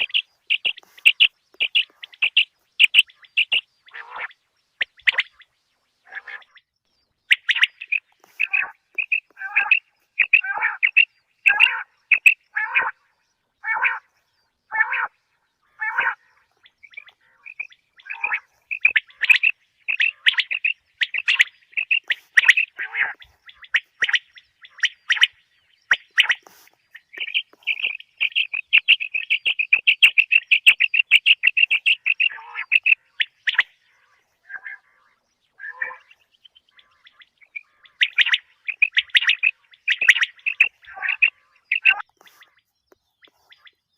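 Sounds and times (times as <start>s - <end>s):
quail calling: 0.0s - 6.6s, 7.3s - 13.0s, 13.6s - 42.6s.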